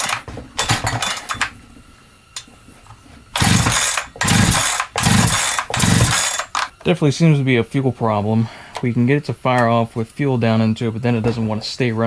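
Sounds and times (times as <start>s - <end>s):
chainsaw engine burst: 0.0s - 1.5s, 3.4s - 6.7s
engine cranking: 0.0s - 1.6s, 3.4s - 6.8s
recoil starter pulls: 0.0s - 1.6s, 3.3s - 7.0s.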